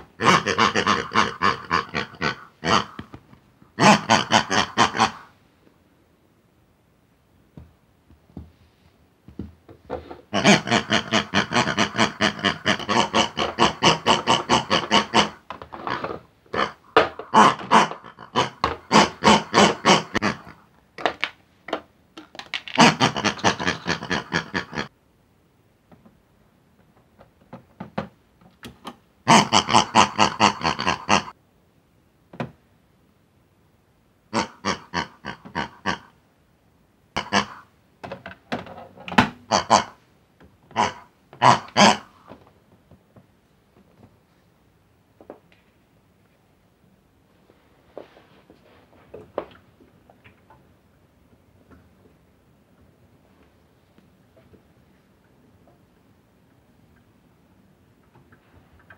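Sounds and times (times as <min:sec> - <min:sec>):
cartoon pigs oinking and squealing: 0:00.2 - 0:03.0, 0:03.8 - 0:05.3, 0:10.3 - 0:20.6, 0:22.7 - 0:24.9, 0:29.3 - 0:31.4, 0:34.3 - 0:36.2, 0:37.2 - 0:37.7, 0:39.5 - 0:40.0, 0:40.7 - 0:42.2.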